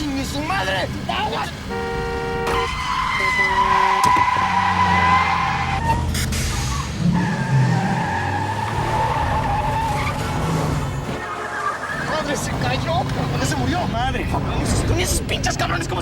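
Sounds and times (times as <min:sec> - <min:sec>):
car tyres squealing: 0:00.6 - 0:14.0
car horn: 0:01.4 - 0:06.1, 0:11.0 - 0:12.1.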